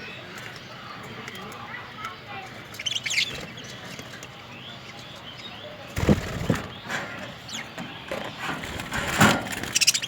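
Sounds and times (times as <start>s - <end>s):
wings flapping: 6.0s - 6.7s
budgerigars chirping: 9.6s - 10.0s.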